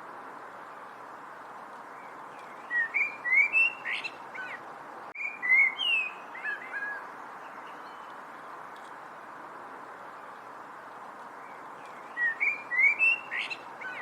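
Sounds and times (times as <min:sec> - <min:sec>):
background hiss: 0:00.0 - 0:14.0
songbird whistling: 0:02.4 - 0:04.6, 0:05.2 - 0:07.0, 0:11.8 - 0:14.0.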